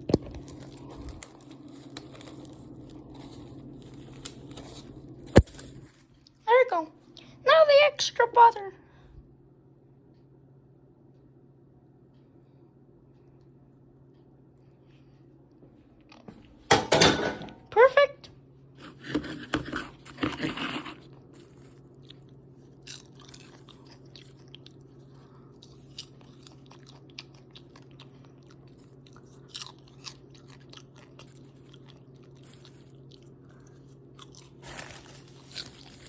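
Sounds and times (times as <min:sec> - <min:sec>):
person chewing popcorn: 0:00.0 - 0:06.4, 0:15.1 - 0:16.7, 0:18.8 - 0:36.0
steady low hum: 0:00.0 - 0:36.0.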